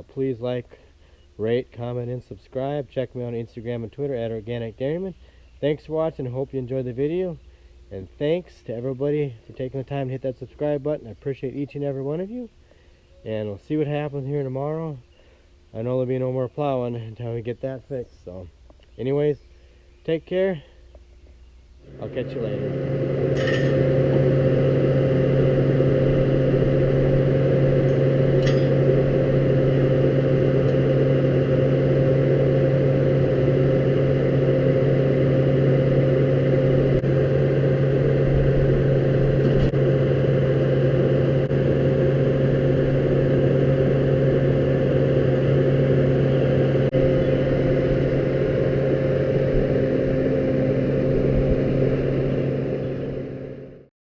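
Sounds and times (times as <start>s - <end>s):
tractor engine running: 21.8s - 53.8s.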